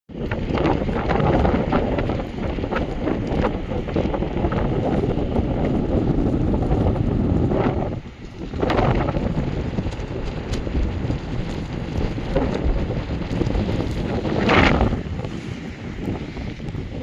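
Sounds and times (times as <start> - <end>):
wind gusting against microphone: 0.1 - 17.0.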